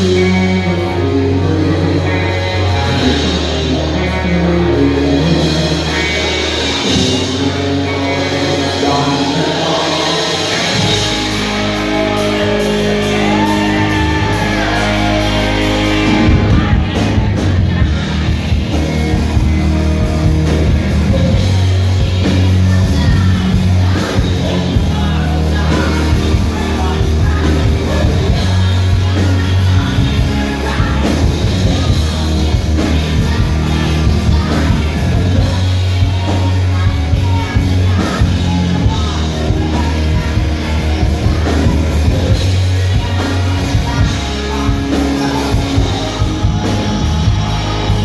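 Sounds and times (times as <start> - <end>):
live rock band playing: 0.0 - 48.0
person singing: 0.0 - 48.0
shouts: 11.7 - 16.2.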